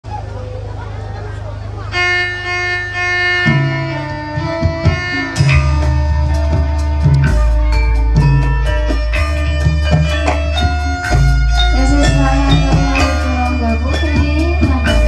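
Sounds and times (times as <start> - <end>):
deep bass note: 1.9 - 15.0
hand drum strokes: 3.4 - 15.0.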